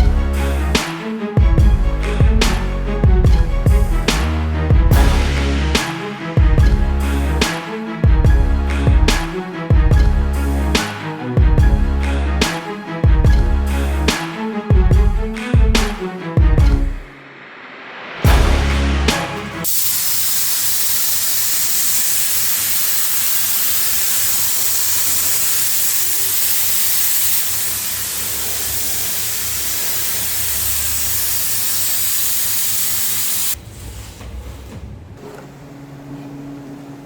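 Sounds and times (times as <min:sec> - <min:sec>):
high-pressure spray hissing: 0:19.2 - 0:33.6.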